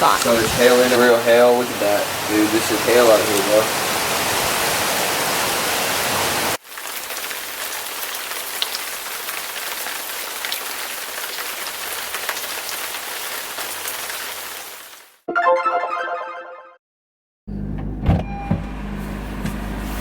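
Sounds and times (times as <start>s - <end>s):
rain patter hiss: 0.0s - 15.2s
hailstones ticking: 6.6s - 14.7s.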